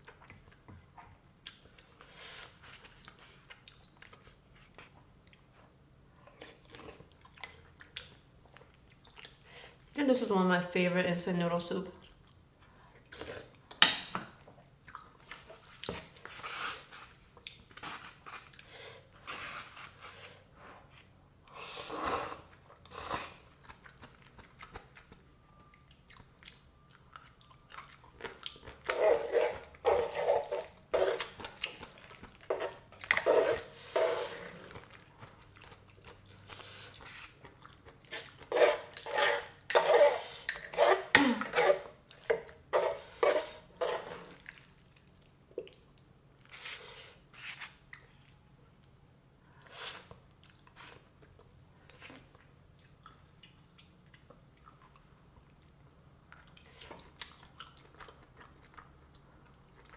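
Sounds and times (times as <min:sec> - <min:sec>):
person chewing: 0:00.0 - 0:09.4, 0:21.5 - 0:48.4, 0:49.6 - 0:59.9.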